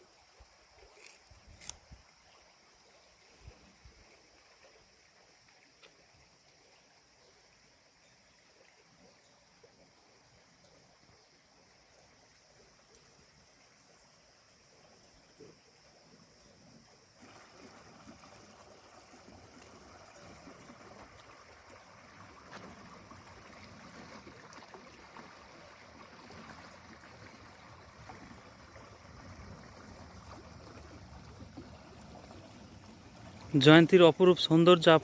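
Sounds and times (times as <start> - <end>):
river water rushing: 17.2 - 35.0.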